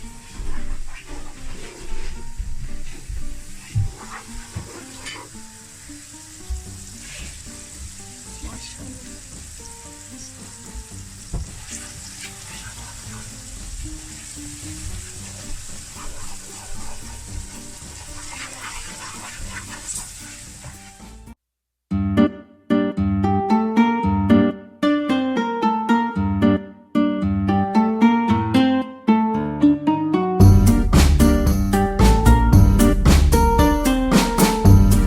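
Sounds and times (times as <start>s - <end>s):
masala sizzling in a pot: 0.0s - 21.4s
stirring clicks and scrapes: 2.9s - 5.4s, 10.3s - 21.1s.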